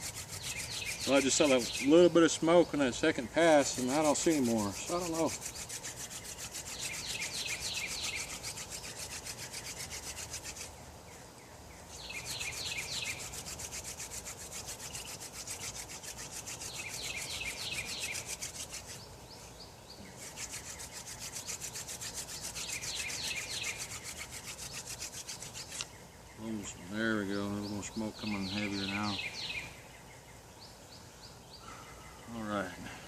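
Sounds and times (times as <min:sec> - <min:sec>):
spindle rubbing in fireboard: 0:00.0 - 0:02.5, 0:03.4 - 0:10.8, 0:12.0 - 0:19.0, 0:20.1 - 0:25.9.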